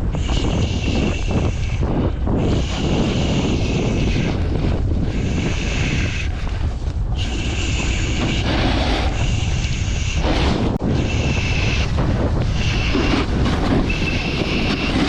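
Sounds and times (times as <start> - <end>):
wind buffeting microphone: 0.0 - 15.0
snowboard edge scraping snow: 7.2 - 15.0.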